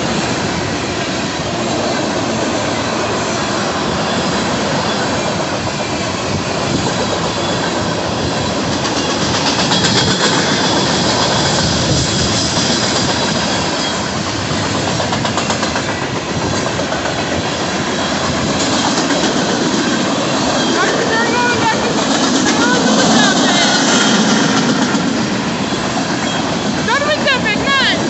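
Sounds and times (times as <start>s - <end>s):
freight train wheels rumbling on rail: 0.0s - 28.0s
wheel squeal: 6.7s - 14.8s, 17.8s - 26.8s.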